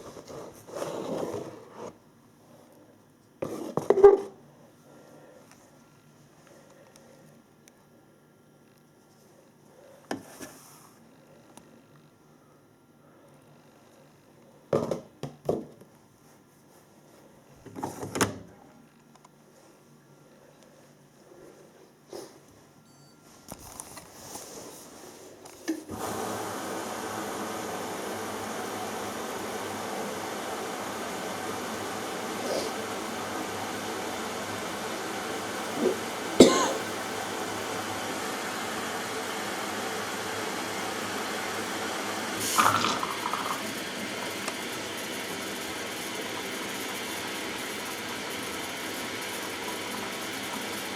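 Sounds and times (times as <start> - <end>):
washing machine hissing and humming: 25.8 - 50.9.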